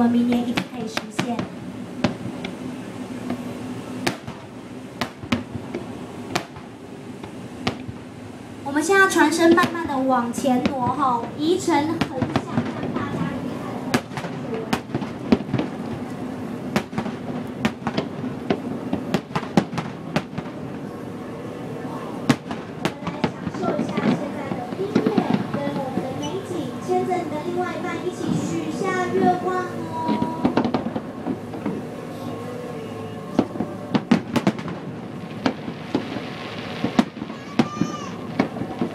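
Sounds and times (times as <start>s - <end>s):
steady background hiss: 0.0s - 38.9s
fireworks bangs and cracks: 0.2s - 2.6s, 3.2s - 8.1s, 9.4s - 20.9s, 22.2s - 26.9s, 28.2s - 31.9s, 33.3s - 38.9s
firework hiss: 33.3s - 38.9s.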